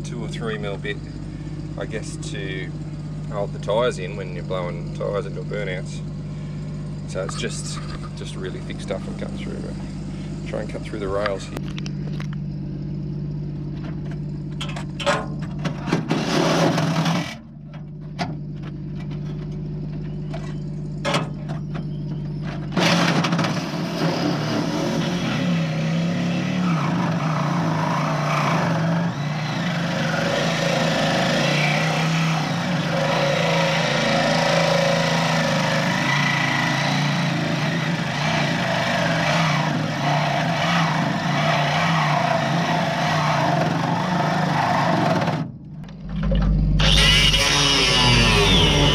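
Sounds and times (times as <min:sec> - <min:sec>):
angle grinder cutting steel: 0:46.7 - 0:48.9.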